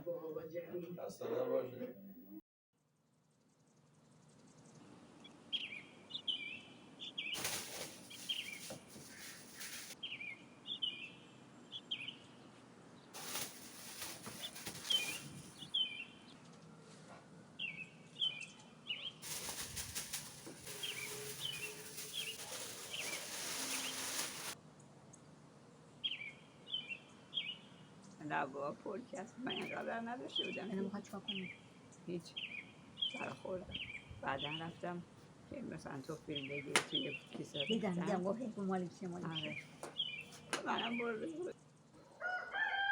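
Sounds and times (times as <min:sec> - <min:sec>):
songbird chirping: 0:03.6 - 0:07.4, 0:14.8 - 0:16.4, 0:17.6 - 0:19.4, 0:20.7 - 0:24.2, 0:26.0 - 0:35.0, 0:35.6 - 0:42.8.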